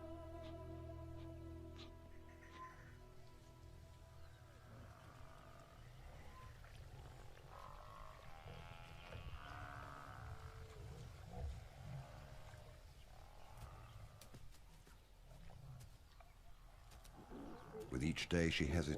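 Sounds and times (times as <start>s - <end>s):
lion cubs crying: 0.0s - 3.0s.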